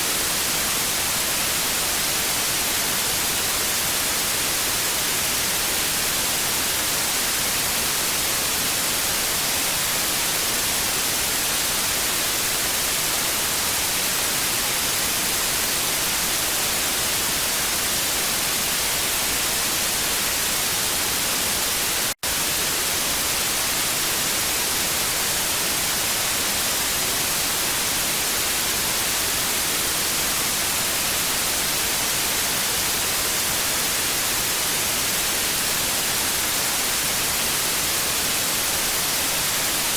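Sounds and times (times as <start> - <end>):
television static hiss: 0.0 - 39.9.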